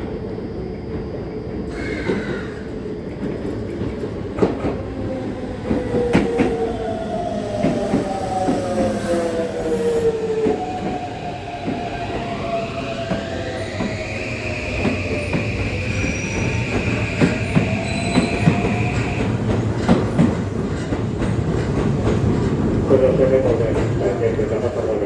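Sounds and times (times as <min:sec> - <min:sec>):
train rumble: 0:00.0 - 0:25.0
rail clicks: 0:01.7 - 0:25.0
train motor whine: 0:07.4 - 0:19.4.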